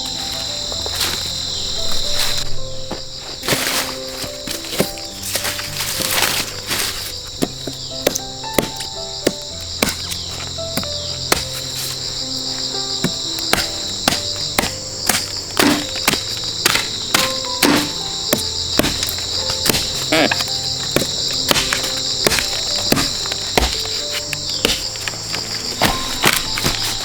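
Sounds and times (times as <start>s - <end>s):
insect chorus drone: 0.0s - 27.0s
soft background music: 0.0s - 27.0s
sharp knocks: 7.4s - 12.0s, 13.0s - 25.0s.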